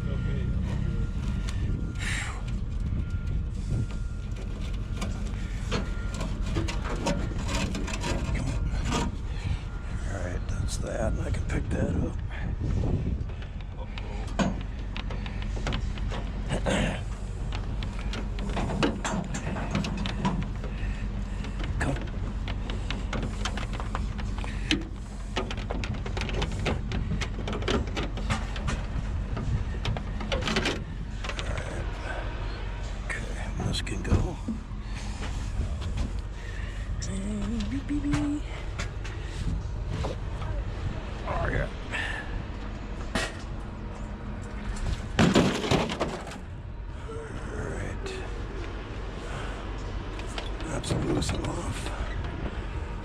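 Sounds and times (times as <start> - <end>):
steady low hum: 0.0 - 53.0
steady low rumble: 0.0 - 53.0
scrap parts clicking and rattling: 3.9 - 9.8, 13.2 - 31.9, 44.5 - 46.5.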